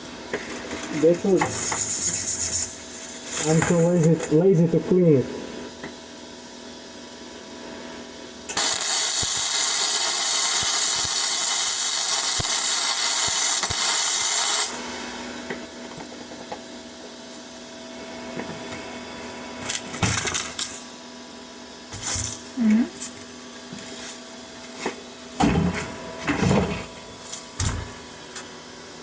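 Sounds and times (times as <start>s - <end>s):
welding arc hissing and crackling: 0.0s - 4.9s, 8.5s - 15.1s
welder machine humming: 0.0s - 29.0s.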